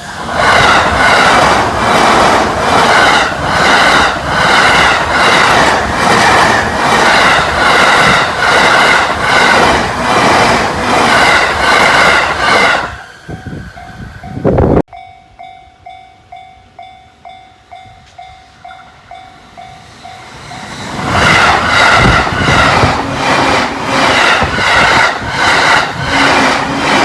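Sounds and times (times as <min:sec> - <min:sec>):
train passing at high speed: 0:00.0 - 0:27.0
level crossing warning bell: 0:13.7 - 0:20.8.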